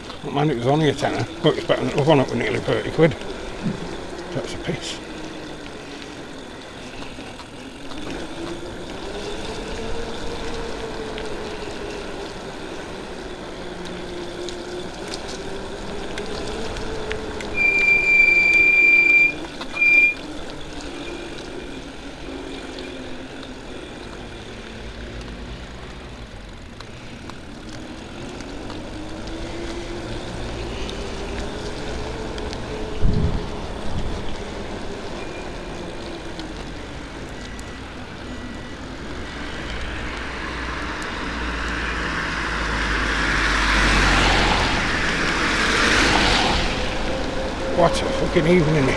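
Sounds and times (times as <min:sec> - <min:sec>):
wind and road noise: 0:00.0 - 0:48.9
high-pitched beep: 0:17.6 - 0:20.2.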